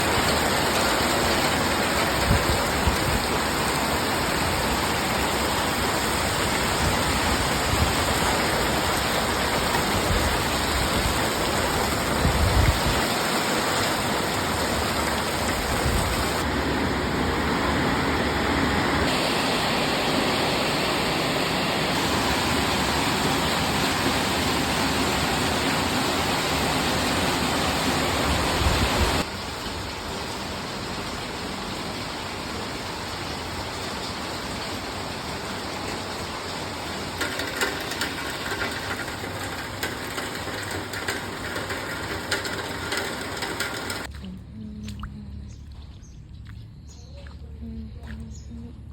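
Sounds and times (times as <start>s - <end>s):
heavy rain pouring: 0.0s - 44.1s
wind gusting against microphone: 5.0s - 19.3s, 21.6s - 29.2s.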